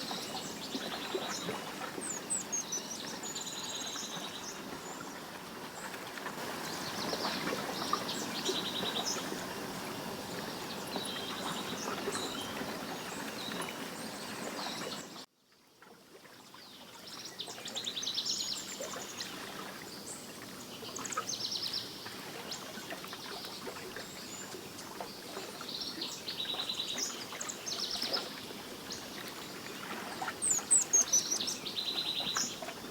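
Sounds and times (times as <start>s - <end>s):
songbirds singing: 0.0s - 15.2s, 25.3s - 32.9s.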